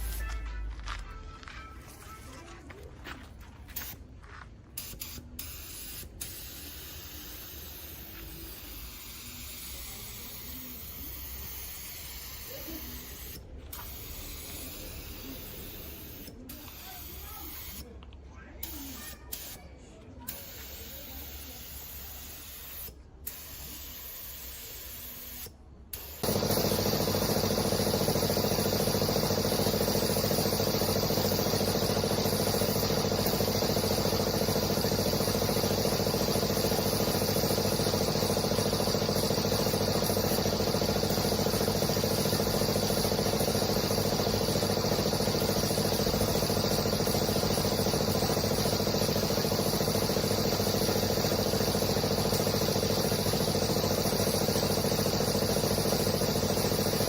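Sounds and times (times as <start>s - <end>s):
machine humming loudly: 26.2s - 57.0s.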